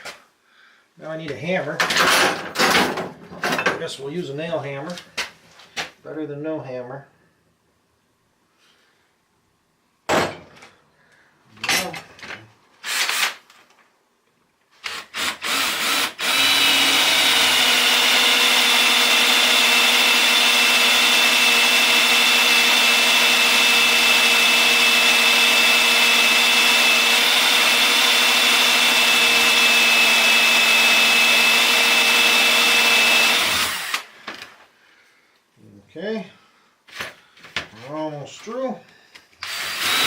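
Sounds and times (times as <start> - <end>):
electric drill boring into metal: 12.8 - 13.4, 14.8 - 34.1, 39.4 - 40.0.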